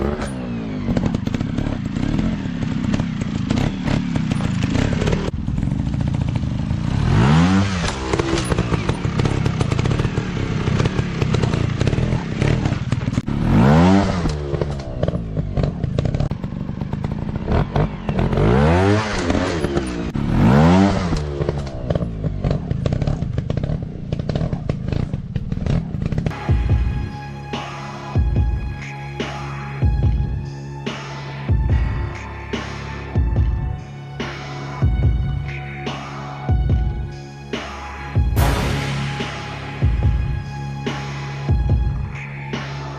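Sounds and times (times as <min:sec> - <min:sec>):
bikes knocking and clattering: 0:00.0 - 0:07.0, 0:07.6 - 0:13.4, 0:14.0 - 0:20.3, 0:20.9 - 0:26.3
dirt bike engines revving: 0:00.0 - 0:26.5.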